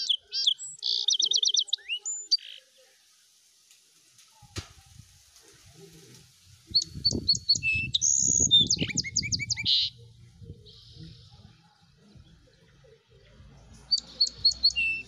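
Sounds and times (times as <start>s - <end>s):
songbird singing: 0.0s - 15.0s.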